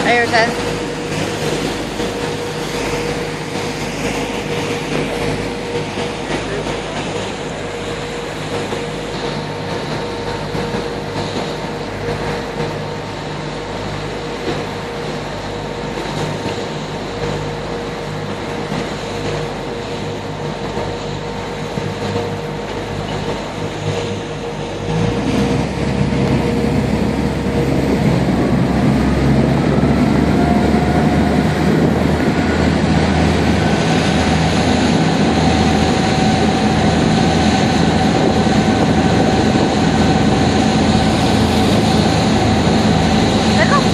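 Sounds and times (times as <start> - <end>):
boat engine running: 0.0 - 43.9
engine whine rising in pitch: 24.8 - 43.9.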